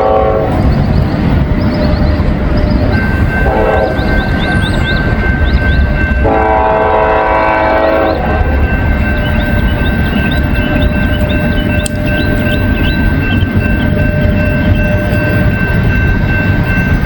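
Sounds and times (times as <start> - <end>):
locomotive air horn blasts: 0.0 - 0.6, 3.4 - 4.1, 6.2 - 8.7
freight train rumbling: 0.0 - 17.0.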